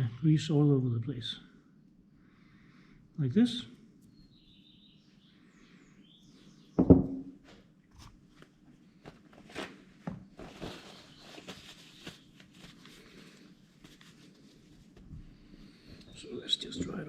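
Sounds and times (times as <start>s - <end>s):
loud knock: 6.8s - 7.3s.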